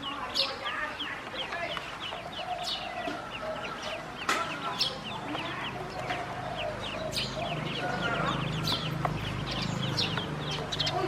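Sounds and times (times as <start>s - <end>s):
ducklings peeping: 0.0s - 11.0s.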